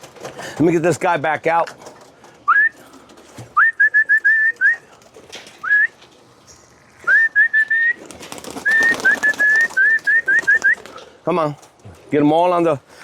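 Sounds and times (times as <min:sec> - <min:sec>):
person whistling: 0:02.5 - 0:02.8, 0:03.6 - 0:04.8, 0:05.6 - 0:06.0, 0:07.1 - 0:08.0, 0:08.7 - 0:10.8.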